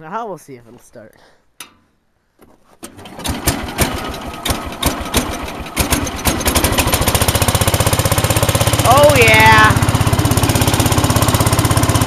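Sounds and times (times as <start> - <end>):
starter cranking engine: 2.8 - 12.0
small engine running: 3.0 - 12.0.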